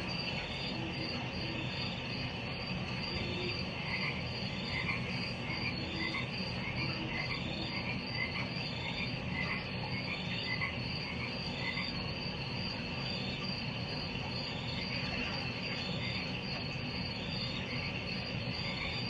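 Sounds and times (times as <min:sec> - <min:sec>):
frogs chirping: 0:00.0 - 0:19.0
high insect trill: 0:00.0 - 0:19.0
low background hum: 0:00.0 - 0:19.0.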